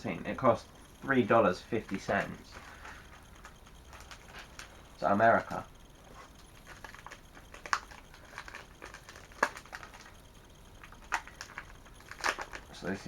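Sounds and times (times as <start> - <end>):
paper rustling and crinkling: 5.3 - 10.2, 10.8 - 13.0
sharp paper crackles: 6.6 - 10.1, 10.8 - 12.8.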